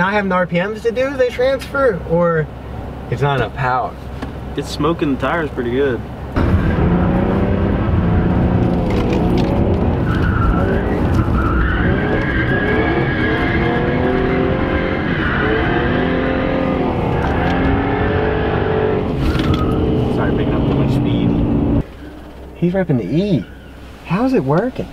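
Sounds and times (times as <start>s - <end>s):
car engine revving: 4.4s - 22.9s
tires skidding: 6.4s - 24.9s.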